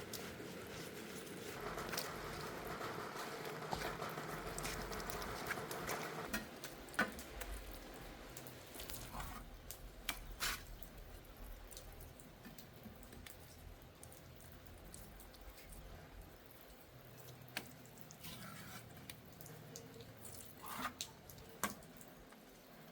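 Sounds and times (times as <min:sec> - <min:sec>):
wet rubbing on tiled floor: 0:00.0 - 0:06.3, 0:17.2 - 0:19.5.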